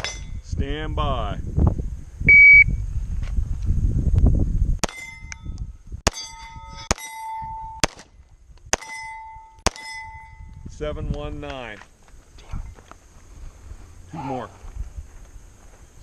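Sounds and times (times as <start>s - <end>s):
shot timer beep: 2.3s - 2.7s
ring of struck steel plate: 4.9s - 7.8s, 8.8s - 10.5s
pistol shots: 7.8s - 8.1s, 9.6s - 10.0s.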